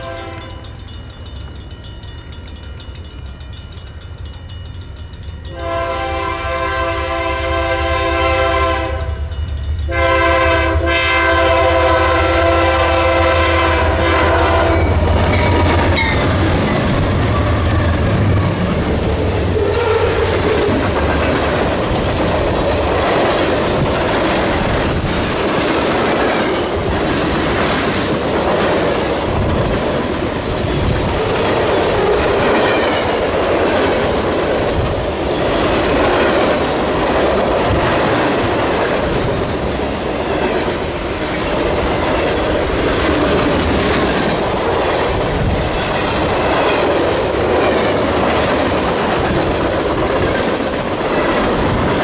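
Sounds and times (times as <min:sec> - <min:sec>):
freight train rumbling past: 0:00.0 - 0:52.0
steel wheels clicking over rail joints: 0:14.4 - 0:52.0.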